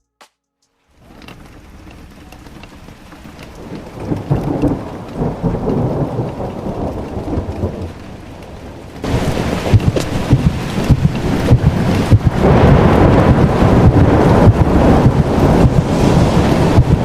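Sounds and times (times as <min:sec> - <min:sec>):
rain falling: 0:00.9 - 0:17.0
thunder rumbling: 0:01.0 - 0:17.0.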